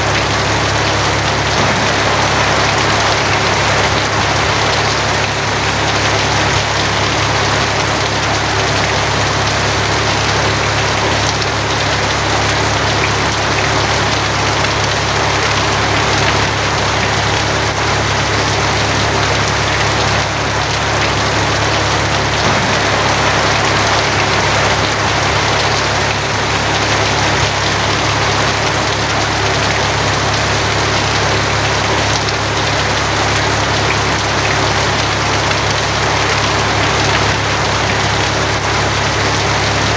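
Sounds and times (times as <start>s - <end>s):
heavy rain on a tin roof: 0.0s - 39.9s
low rumble: 1.6s - 5.8s, 22.4s - 27.4s.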